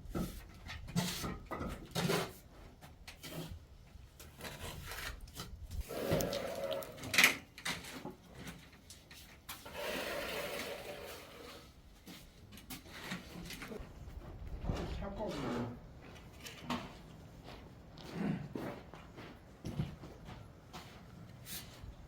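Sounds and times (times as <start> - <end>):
rough scraping on hard surface: 9.5 - 12.2.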